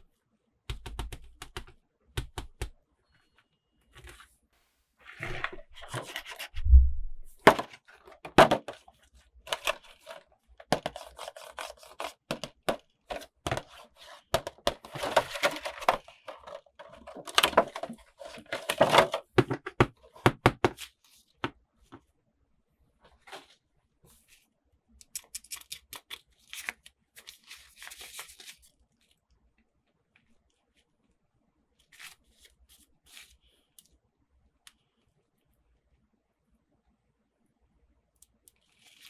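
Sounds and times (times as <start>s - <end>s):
low thump: 6.6s - 7.4s
packaging rustling: 13.1s - 19.2s
toy packaging crinkling: 13.1s - 19.2s, 25.1s - 28.7s.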